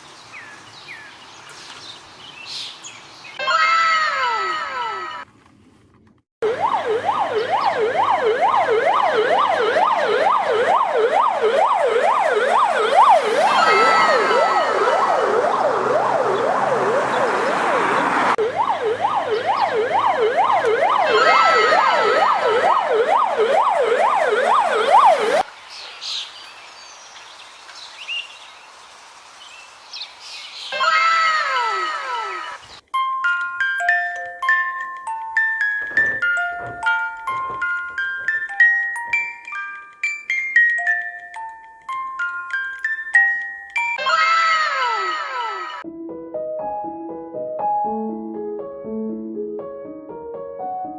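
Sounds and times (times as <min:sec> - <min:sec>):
siren yelping: 0:03.4 - 0:05.2, 0:06.4 - 0:25.4, 0:30.7 - 0:32.7, 0:44.0 - 0:45.8
short falling call: 0:13.4 - 0:15.5.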